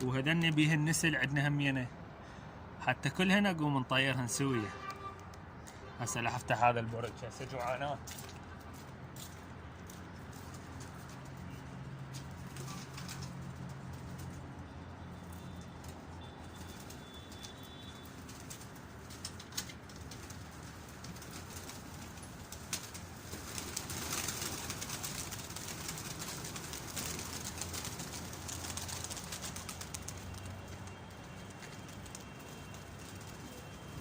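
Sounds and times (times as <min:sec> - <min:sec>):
wings flapping: 0:12.2 - 0:14.4, 0:15.8 - 0:34.0
pigeon clicks: 0:15.5 - 0:34.0.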